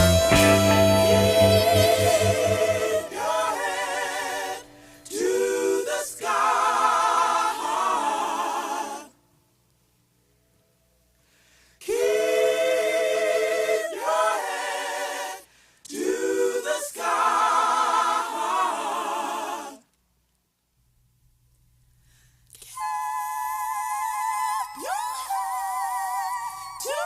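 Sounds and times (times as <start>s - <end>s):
a cappella vocal group singing: 0.0s - 9.2s, 11.8s - 19.9s, 22.7s - 27.0s.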